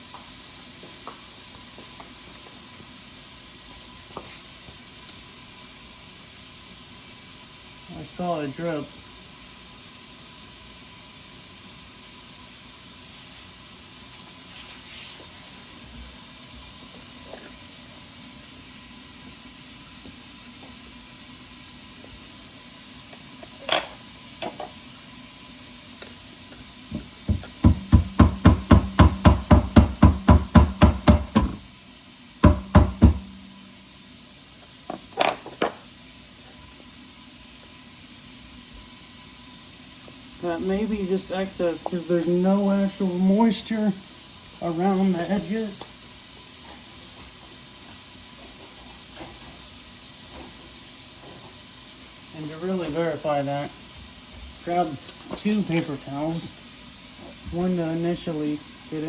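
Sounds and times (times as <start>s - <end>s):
fast sharp knocks: 27.3s - 31.6s, 32.4s - 33.4s.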